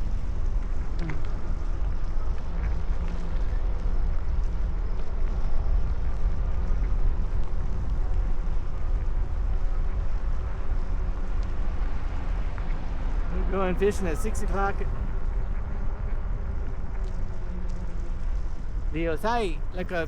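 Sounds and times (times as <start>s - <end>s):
wind rumbling on microphone: 0.0s - 20.0s
faint hum of passing traffic: 8.0s - 20.0s.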